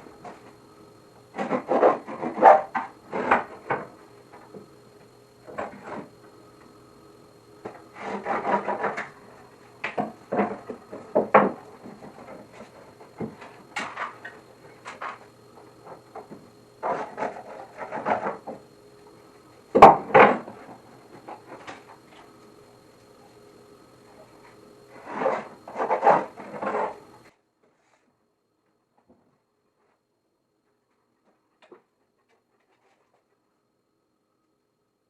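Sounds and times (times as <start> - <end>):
wooden boards knocking and scraping: 1.4 - 4.6, 7.6 - 9.2, 9.8 - 15.2, 15.8 - 18.6, 19.8 - 20.6.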